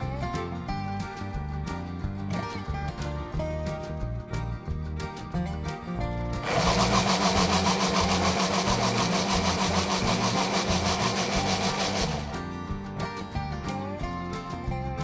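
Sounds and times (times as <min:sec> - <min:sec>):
blender motor whirring: 0:06.4 - 0:12.4.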